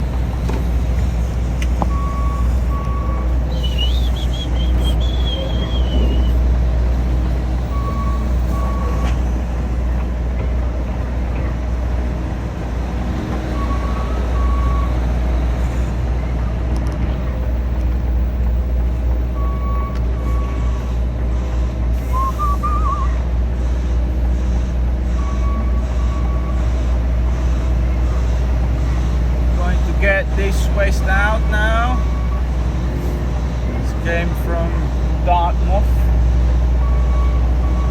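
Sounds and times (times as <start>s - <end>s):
diesel truck engine idling: 0.0s - 37.9s
short electronic beeps: 1.9s - 6.4s.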